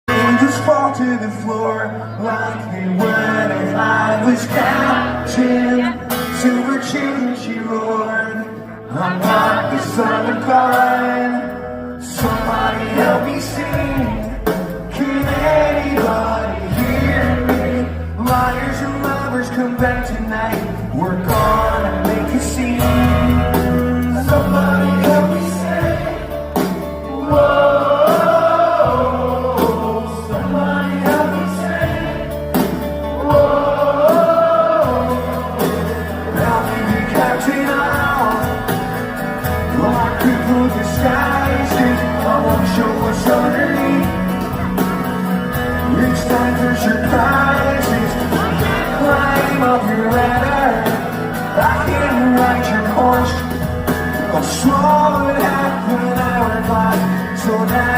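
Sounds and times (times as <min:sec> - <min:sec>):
live rock band playing: 0:00.0 - 0:57.9
crowd singing along: 0:00.1 - 0:57.9.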